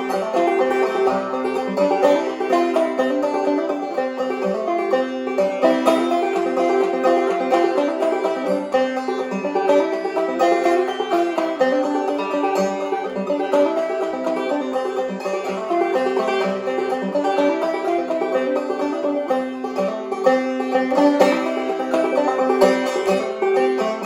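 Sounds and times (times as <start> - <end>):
banjo played clawhammer style: 0.0 - 24.0.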